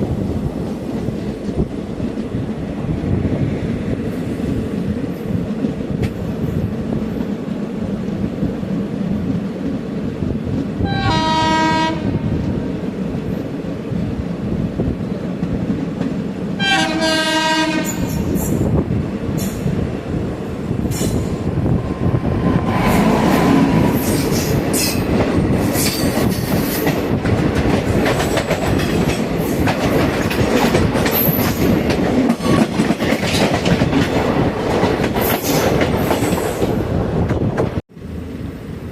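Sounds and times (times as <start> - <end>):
train wheels rumbling on track: 0.0 - 38.9
train horn blasts: 10.8 - 12.2, 16.6 - 18.3.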